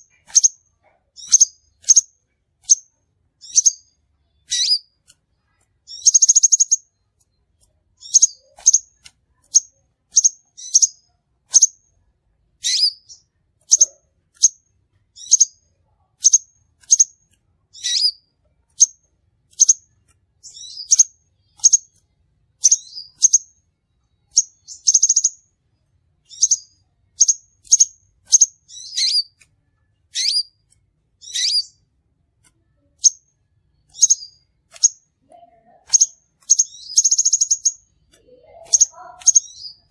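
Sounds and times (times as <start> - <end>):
buzzy bird trills: 1.2 - 5.0, 5.9 - 7.0, 8.0 - 11.8, 12.6 - 14.6, 16.2 - 22.0, 22.6 - 23.6, 24.2 - 25.4, 26.3 - 29.4, 30.1 - 31.8, 32.7 - 39.9
bird calling with sharp chips: 1.2 - 5.2, 5.9 - 6.9, 8.0 - 11.8, 12.6 - 14.6, 16.2 - 18.2, 18.8 - 22.0, 22.6 - 23.5, 26.3 - 29.5, 30.1 - 31.9, 33.9 - 35.1, 35.8 - 39.9.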